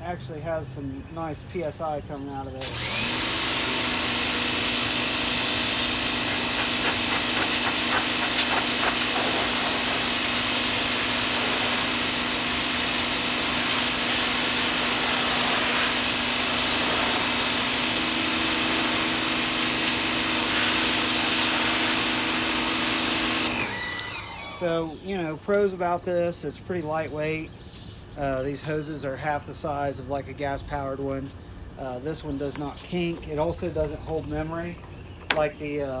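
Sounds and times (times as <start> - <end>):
pressure washer pump humming: 2.6 - 25.4
water jet hissing on wood: 2.9 - 24.7.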